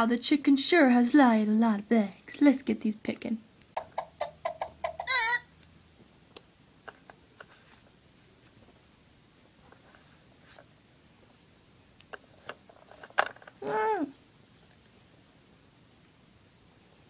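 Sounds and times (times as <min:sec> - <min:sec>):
short voiced sound: 0:13.6 - 0:14.2.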